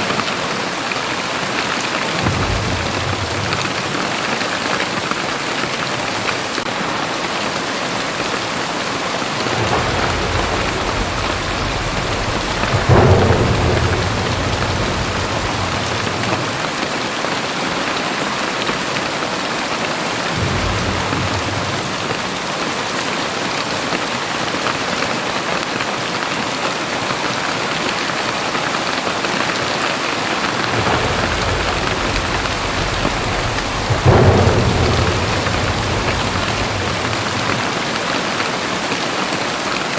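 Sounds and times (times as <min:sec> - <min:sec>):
heavy rain falling: 0:00.0 - 0:39.9
deep thunder rumbles: 0:01.8 - 0:06.6, 0:08.3 - 0:17.4, 0:20.1 - 0:23.2, 0:29.3 - 0:39.0.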